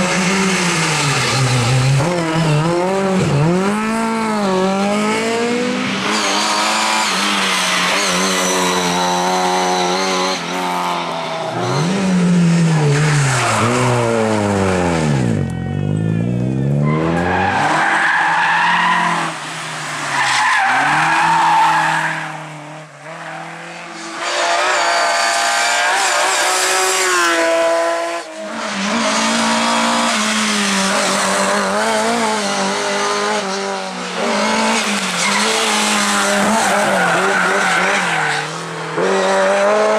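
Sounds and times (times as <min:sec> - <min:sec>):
rally car engines revving: 0:00.0 - 0:39.9
tyres squealing and skidding: 0:05.9 - 0:12.2, 0:12.8 - 0:27.2, 0:34.2 - 0:39.9.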